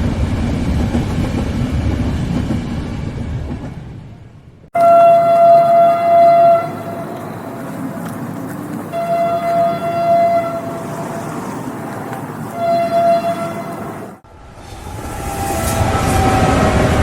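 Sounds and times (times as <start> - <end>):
train rumbling: 0.0 - 17.0
train horn blasts: 4.8 - 7.2, 8.9 - 11.0, 12.5 - 13.9, 14.8 - 17.0.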